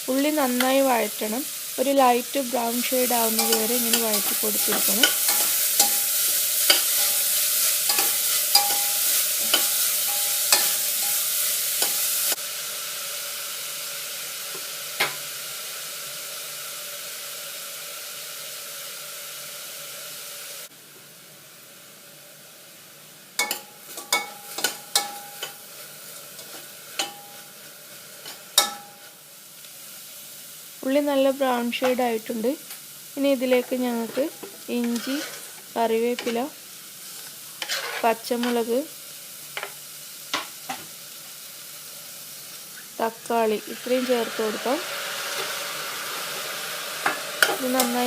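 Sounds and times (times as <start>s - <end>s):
onions sizzling in a pan: 0.0s - 48.0s
spatula clacking against pan: 7.9s - 11.2s.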